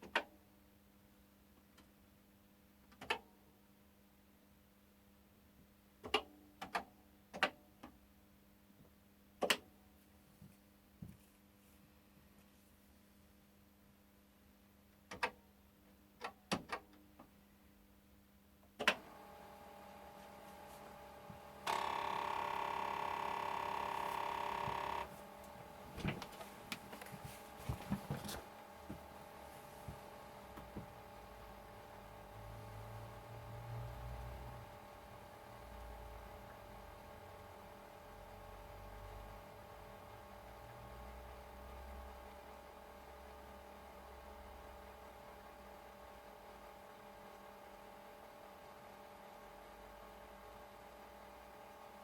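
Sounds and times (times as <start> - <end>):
faint steady hum: 17.1 - 52.0.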